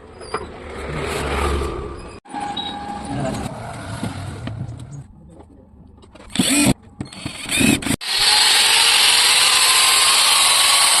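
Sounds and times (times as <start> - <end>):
electric grinder whining: 6.4 - 11.0.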